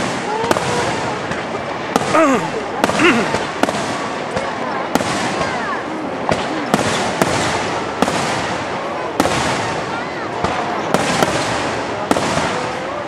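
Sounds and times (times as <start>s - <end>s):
continuous dense noise: 0.0s - 13.0s.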